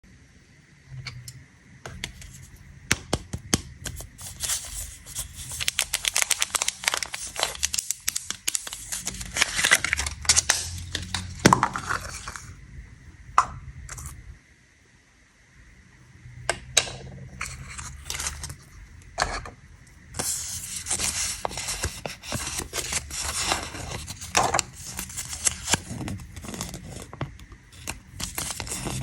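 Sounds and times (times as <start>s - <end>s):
candy wrapper crinkling: 3.8s - 12.5s, 17.4s - 18.8s, 20.2s - 29.0s.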